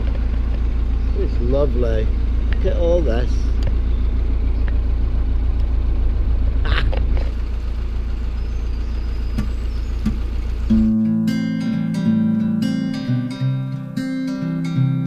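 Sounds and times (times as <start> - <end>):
boat diesel engine throbbing: 0.0 - 14.9.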